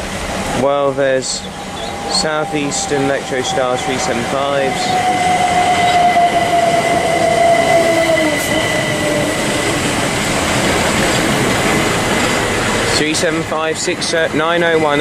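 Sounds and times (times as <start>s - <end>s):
train rumble: 0.0s - 15.0s
traction motors whining: 1.2s - 13.2s.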